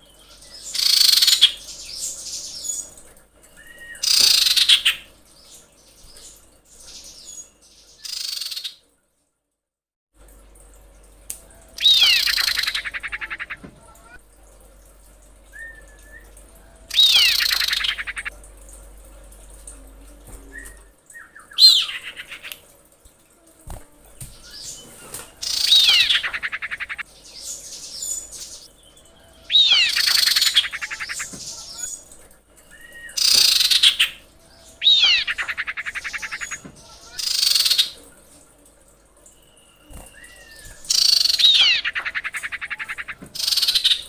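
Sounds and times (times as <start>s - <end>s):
bird chattering with falling whistles: 11.8s - 13.6s, 15.5s - 18.3s, 25.4s - 27.0s, 29.4s - 32.0s, 34.8s - 38.0s, 39.8s - 44.0s.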